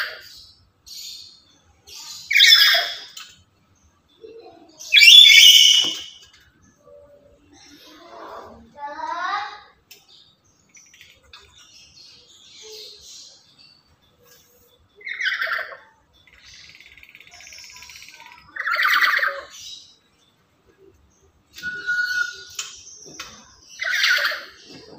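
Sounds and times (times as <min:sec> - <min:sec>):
parrot harsh squawks: 0:02.3 - 0:03.1, 0:04.9 - 0:06.1
soft chattering bird notes: 0:09.9 - 0:24.9.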